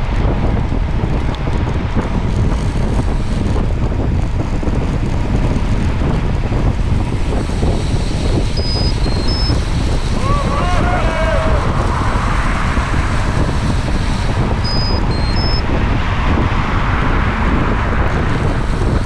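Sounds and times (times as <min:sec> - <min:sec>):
wind buffeting microphone: 0:00.0 - 0:19.0
short high-pitched tones: 0:08.6 - 0:09.6, 0:14.6 - 0:15.6.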